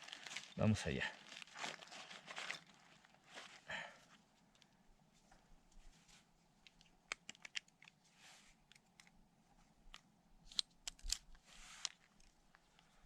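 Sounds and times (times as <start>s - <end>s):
kindling clicks and snaps: 6.7s - 8.0s, 9.9s - 12.4s.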